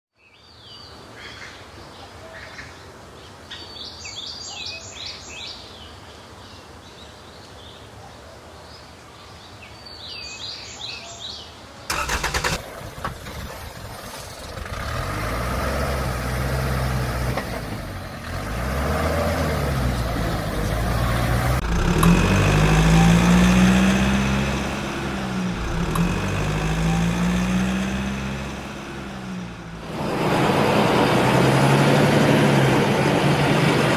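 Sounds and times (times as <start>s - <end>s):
vehicle engine revving: 11.9s - 33.9s.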